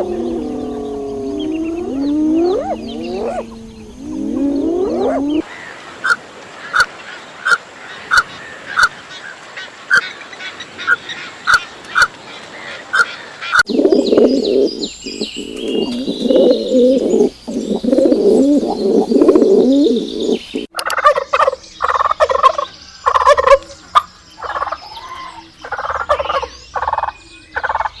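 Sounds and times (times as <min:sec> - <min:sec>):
flock calling: 0:00.0 - 0:05.4, 0:13.7 - 0:21.6
poultry calling: 0:00.0 - 0:05.4, 0:13.7 - 0:23.6.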